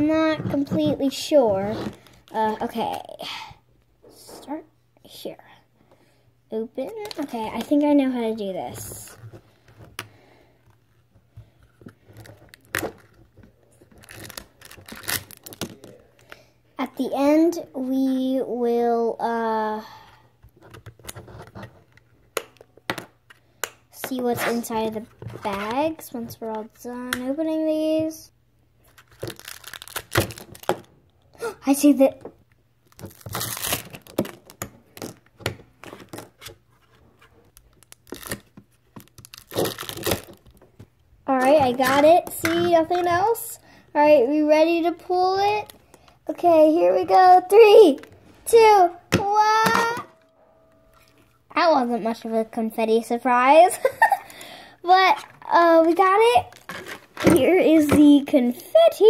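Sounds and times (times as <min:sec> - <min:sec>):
plastic packaging clicks and crinkles: 0:12.0 - 0:16.4, 0:28.9 - 0:31.0, 0:32.8 - 0:41.0.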